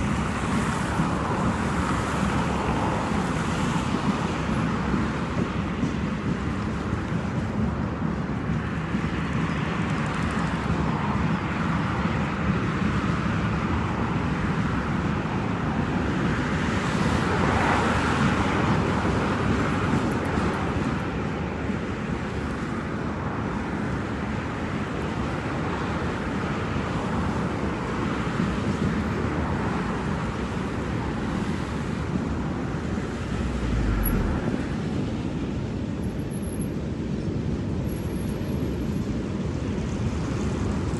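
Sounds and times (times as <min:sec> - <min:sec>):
freight train rumbling past: 0:31.9 - 0:36.0.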